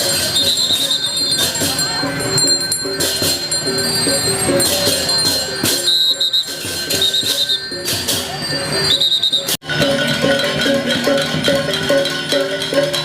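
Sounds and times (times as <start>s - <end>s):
gamelan music: 0.0s - 13.0s.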